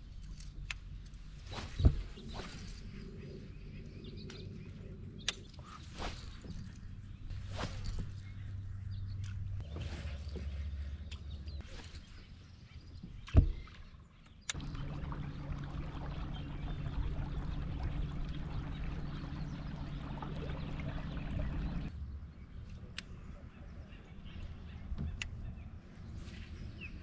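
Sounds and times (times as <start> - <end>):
motor humming: 14.5 - 21.9
water and wind hiss: 14.5 - 21.9.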